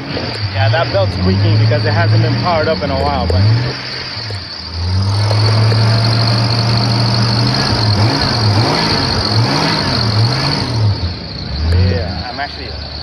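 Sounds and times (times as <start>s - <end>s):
car engine running and revving: 0.0s - 13.0s.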